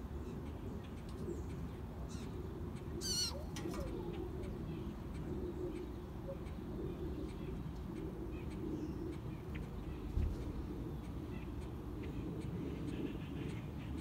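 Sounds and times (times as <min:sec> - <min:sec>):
low cooing calls: 0:00.2 - 0:14.0
bird warbling trill: 0:03.0 - 0:04.1.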